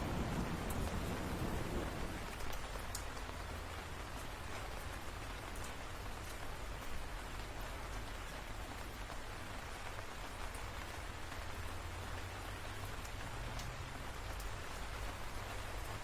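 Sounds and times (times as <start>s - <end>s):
low thunder rumble: 0.0s - 2.6s
steady rain falling: 0.0s - 16.0s.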